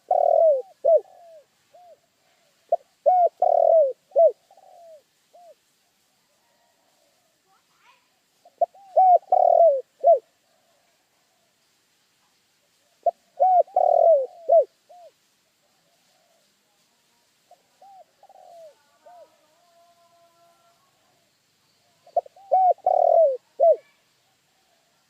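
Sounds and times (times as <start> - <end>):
dove cooing: 0.0 - 5.6, 8.4 - 10.8, 12.8 - 16.4, 17.5 - 24.9.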